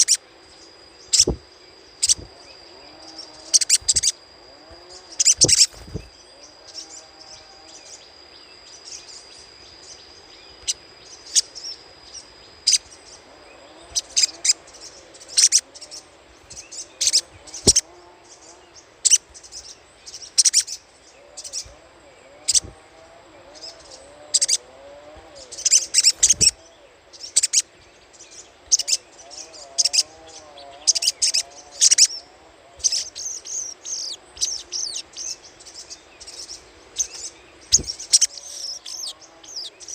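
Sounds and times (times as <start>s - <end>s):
bird chattering calls: 0.0s - 0.2s, 1.1s - 1.4s, 2.0s - 7.1s, 13.6s - 18.0s, 20.1s - 27.8s, 28.7s - 39.9s.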